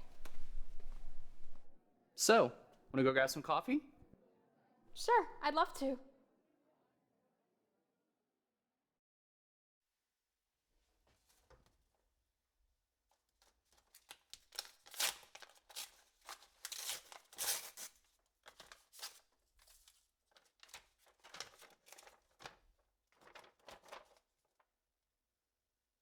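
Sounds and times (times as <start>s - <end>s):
paper tearing and crinkling: 13.7s - 22.6s, 23.2s - 24.3s.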